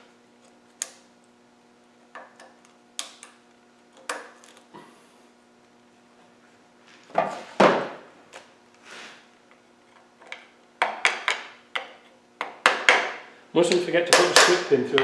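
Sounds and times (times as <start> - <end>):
hand tools knocking and clicking: 10.2 - 15.0.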